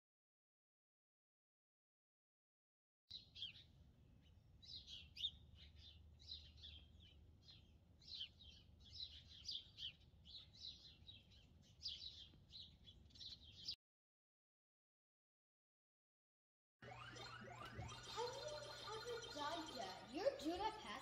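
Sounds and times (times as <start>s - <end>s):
faint low hum: 3.1s - 13.8s, 16.8s - 21.0s
songbirds chirping: 3.1s - 13.8s, 16.8s - 21.0s.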